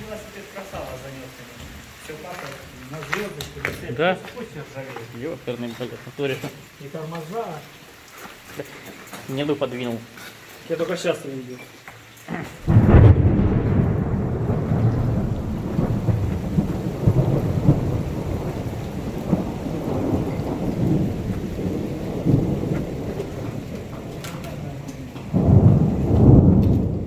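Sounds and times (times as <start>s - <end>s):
thunder rumbling: 12.6s - 27.0s.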